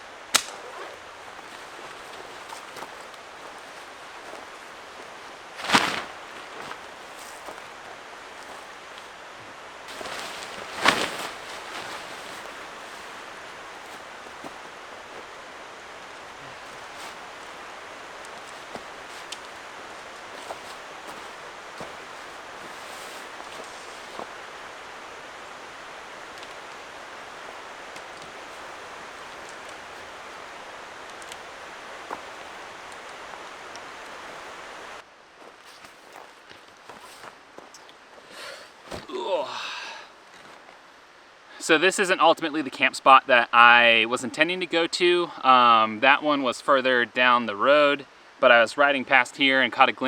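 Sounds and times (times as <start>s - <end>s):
river flowing: 0.0s - 41.6s
brief rustle: 5.6s - 7.7s, 9.9s - 14.6s.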